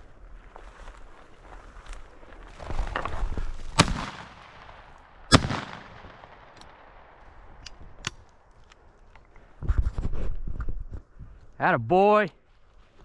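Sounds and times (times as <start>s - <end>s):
footsteps rustling through grass: 0.0s - 4.7s, 12.4s - 13.0s
shotgun shots: 3.8s - 6.8s.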